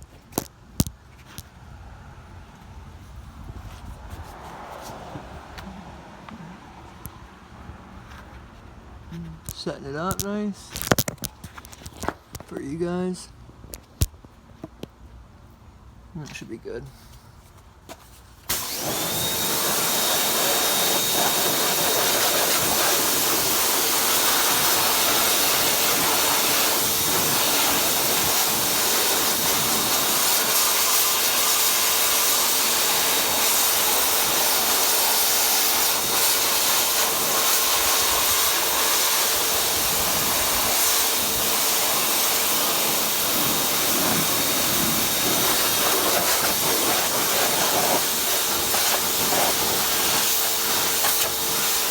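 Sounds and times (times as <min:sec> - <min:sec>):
pressure washer spray hiss: 0:18.5 - 0:51.9
pressure washer whine: 0:18.5 - 0:51.9.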